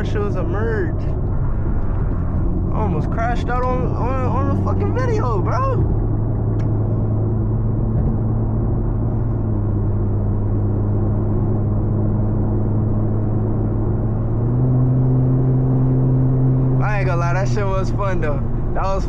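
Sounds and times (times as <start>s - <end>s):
car engine droning inside car: 0.0s - 19.0s.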